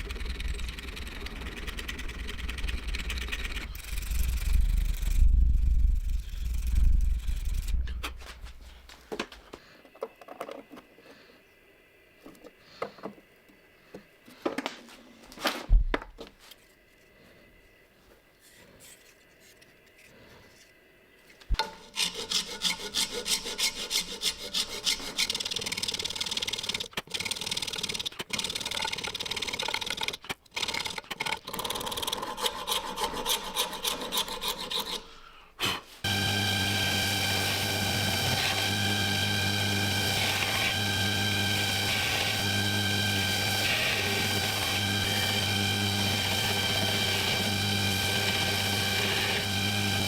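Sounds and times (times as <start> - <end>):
knocks and handling noises: 7.9 - 11.2, 12.2 - 13.3, 13.9 - 17.1
file rasping on knife: 21.8 - 25.5, 32.2 - 35.2.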